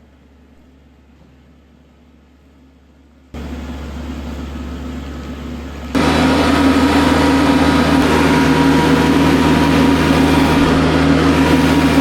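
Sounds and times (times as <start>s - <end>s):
tractor diesel engine running: 3.4s - 12.0s
tractor picking up gravel: 6.0s - 12.0s.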